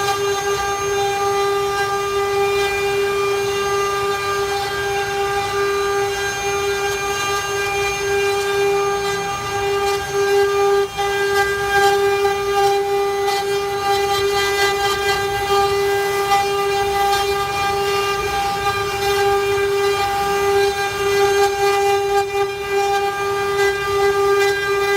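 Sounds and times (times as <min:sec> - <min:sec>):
bit cutting wood: 0:00.0 - 0:24.9
cnc router spindle whine: 0:00.0 - 0:24.9.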